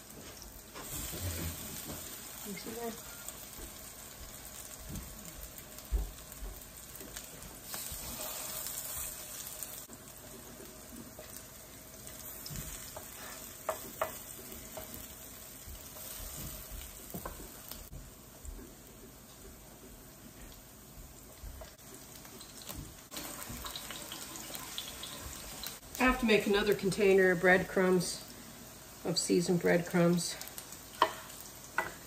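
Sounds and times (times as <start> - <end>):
fish cakes sizzling in fat: 0.0 - 32.0.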